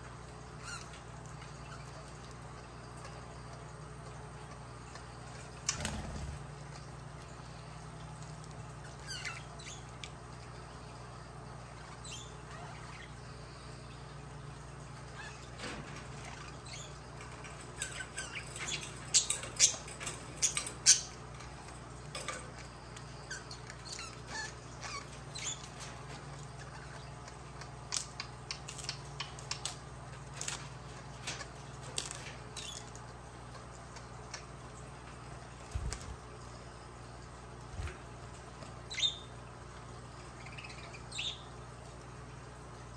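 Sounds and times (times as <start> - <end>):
budgerigars chirping: 38.9 - 39.3, 40.4 - 41.5.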